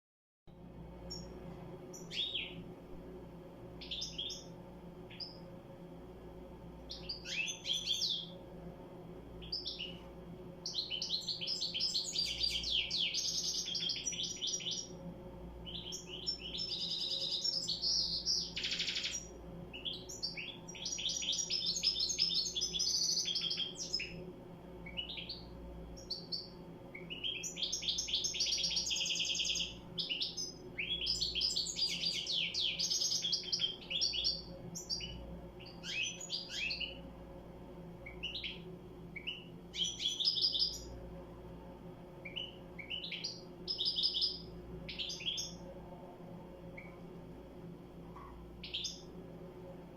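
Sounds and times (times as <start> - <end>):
faint low hum: 0.5 - 49.9
goldfinch twittering song: 1.1 - 2.6, 3.8 - 4.5, 6.9 - 8.3, 10.6 - 15.0, 15.6 - 24.2, 24.8 - 37.0, 39.2 - 40.9, 42.2 - 45.6, 48.6 - 49.1.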